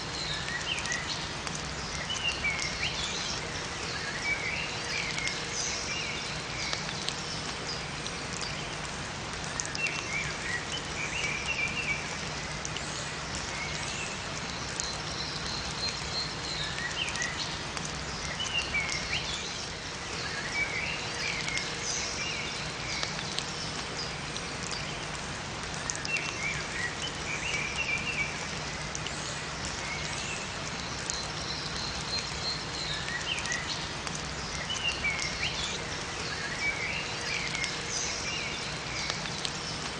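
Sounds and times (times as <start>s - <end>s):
steady rain: 0.0s - 39.9s
small birds chirping: 9.4s - 39.9s.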